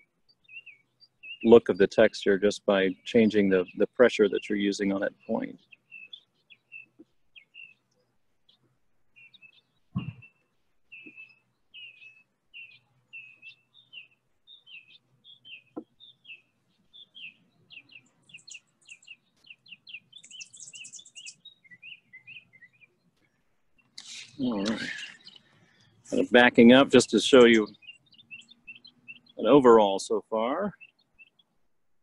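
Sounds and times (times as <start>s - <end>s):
high thin bird trill: 9.2s - 23.0s, 23.8s - 25.5s.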